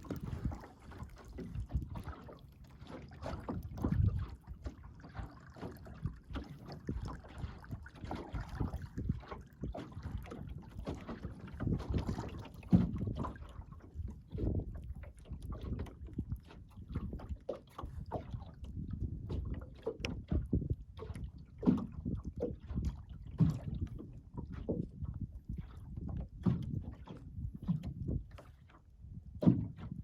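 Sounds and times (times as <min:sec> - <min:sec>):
boat knocking: 0:00.0 - 0:14.8
water slapping against boat hull: 0:00.0 - 0:30.0.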